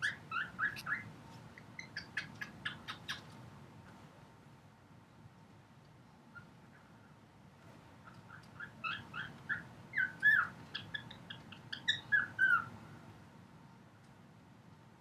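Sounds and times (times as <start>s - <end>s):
cockatiel chirping and warbling: 0.0s - 1.1s, 1.8s - 3.4s, 8.1s - 12.7s.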